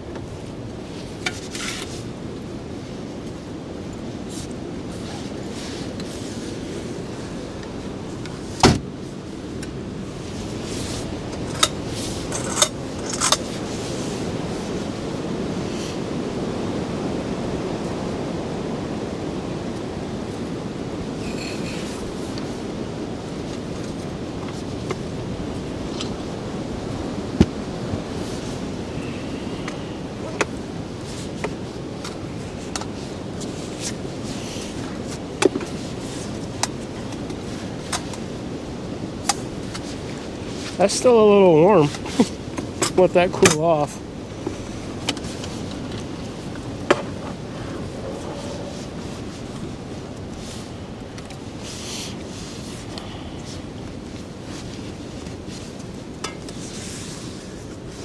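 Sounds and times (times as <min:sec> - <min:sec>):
strong wind blowing: 0:00.0 - 0:58.0
camp gear clicking and knocking: 0:44.3 - 0:49.7.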